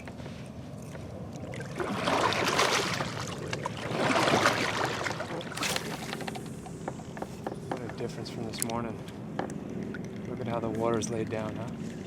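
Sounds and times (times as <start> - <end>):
water sloshing and splashing: 0.0 - 7.4.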